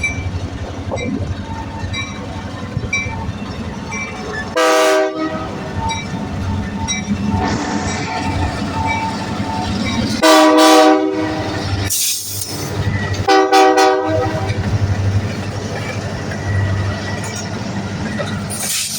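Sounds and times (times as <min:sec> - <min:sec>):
train rumbling past: 0:00.0 - 0:18.9
locomotive air horn blasts: 0:04.6 - 0:05.6, 0:10.2 - 0:11.5, 0:13.3 - 0:14.6.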